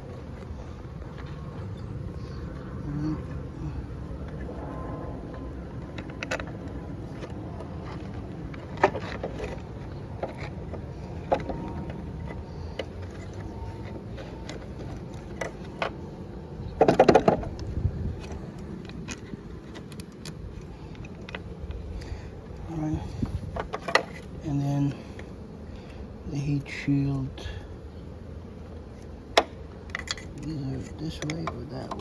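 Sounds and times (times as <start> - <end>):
low background rumble: 0.0 - 14.1
small metal clicks and knocks: 29.4 - 30.5, 31.1 - 32.0.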